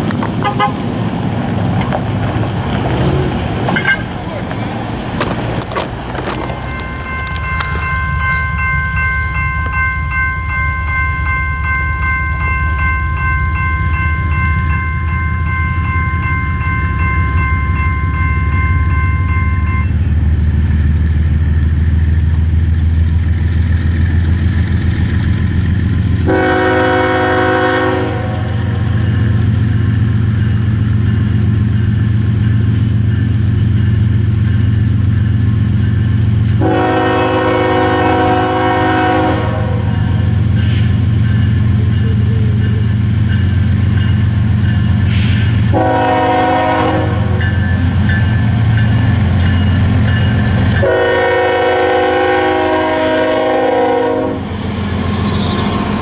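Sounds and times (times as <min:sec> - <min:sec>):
locomotive low rumble: 0:00.0 - 0:56.0
locomotive air horn blast: 0:00.4 - 0:00.9, 0:26.2 - 0:28.5, 0:36.6 - 0:39.9, 0:45.1 - 0:47.4, 0:50.8 - 0:55.8
crossing bell ringing: 0:05.2 - 0:20.1, 0:25.8 - 0:54.4.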